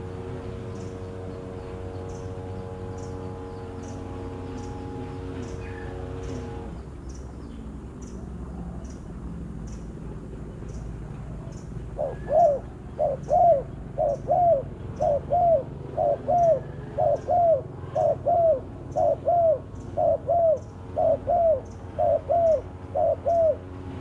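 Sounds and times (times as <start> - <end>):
dove cooing: 2.0 - 6.7, 11.4 - 24.0.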